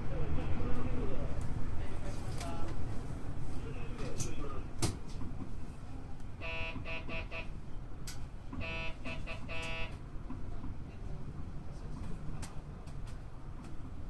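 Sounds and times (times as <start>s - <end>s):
electric buzzer: 6.4s - 7.5s, 8.6s - 9.9s.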